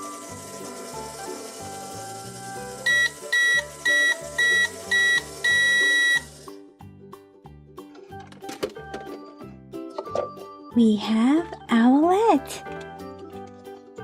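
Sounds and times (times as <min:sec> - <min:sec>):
microwave beeping: 0:00.0 - 0:06.5
microwave running hiss: 0:00.0 - 0:06.5
background music: 0:00.0 - 0:14.0.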